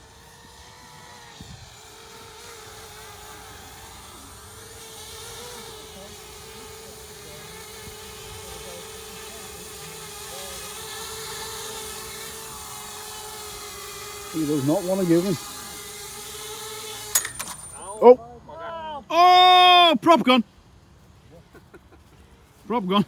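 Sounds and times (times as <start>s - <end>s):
quadcopter propellers buzzing: 0.0s - 18.2s.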